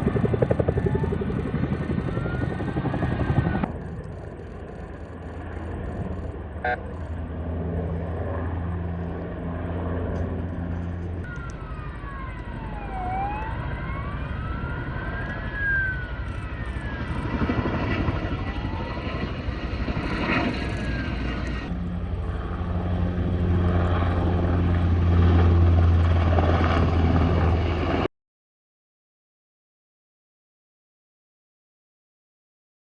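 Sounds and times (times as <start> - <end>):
helicopter rotor and engine: 0.0 - 28.1
wailing tone: 5.4 - 7.2, 11.3 - 19.2.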